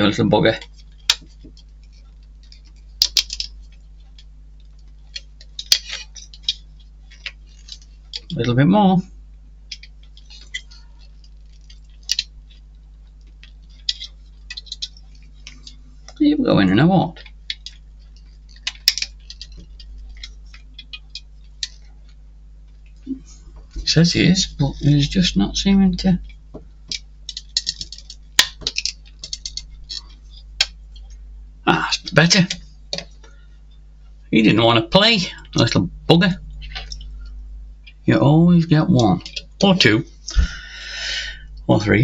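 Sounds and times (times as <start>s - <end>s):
faint steady hum: 0.0s - 42.0s
small plastic parts clicking: 0.4s - 8.6s, 9.6s - 16.2s, 17.1s - 23.0s, 26.0s - 31.2s, 31.9s - 33.4s, 38.9s - 39.9s.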